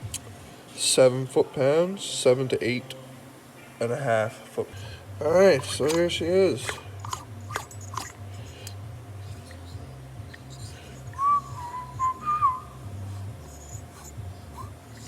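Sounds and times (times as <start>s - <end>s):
steady low hum: 0.0s - 15.0s
person whistling: 9.3s - 15.0s.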